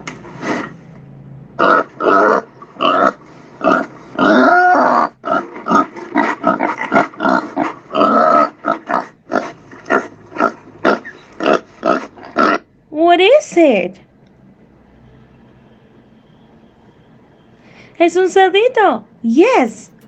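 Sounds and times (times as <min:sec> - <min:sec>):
pig grunting and oinking: 0:01.6 - 0:12.7
pig squealing: 0:01.6 - 0:12.7.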